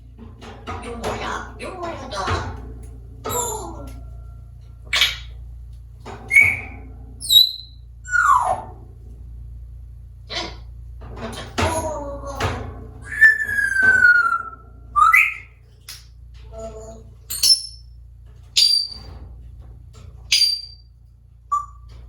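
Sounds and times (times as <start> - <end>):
parrot whistling and calling: 6.3 - 8.6, 13.0 - 15.6, 18.6 - 19.0, 20.3 - 20.8, 21.5 - 21.9.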